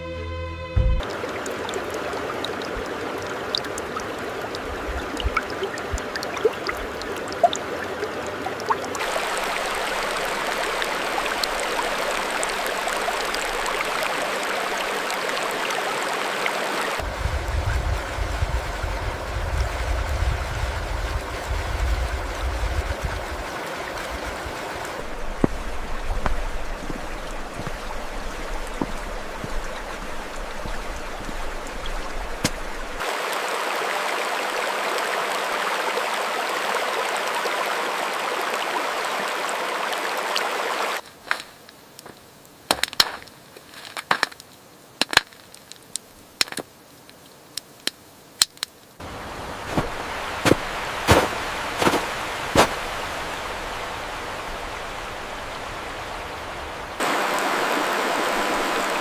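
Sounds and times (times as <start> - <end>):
low wind rumble: 0.0 - 13.7, 17.0 - 33.0, 49.0 - 59.0
stream water rushing: 0.8 - 43.5, 45.1 - 59.0
sharp crackling clicks: 41.4 - 48.9.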